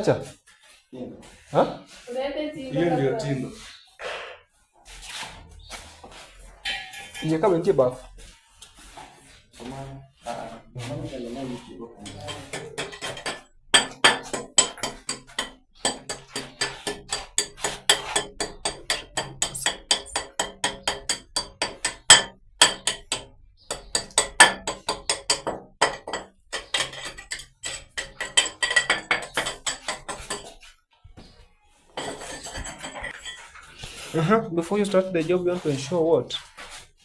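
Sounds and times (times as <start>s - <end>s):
hammer striking chisel: 12.0s - 30.6s.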